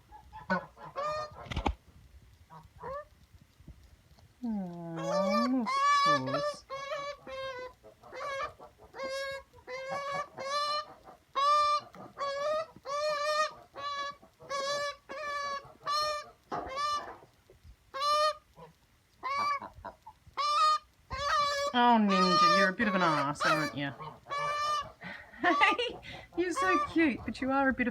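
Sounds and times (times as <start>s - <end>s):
magpie calling: 5.0s - 17.1s, 20.4s - 27.8s.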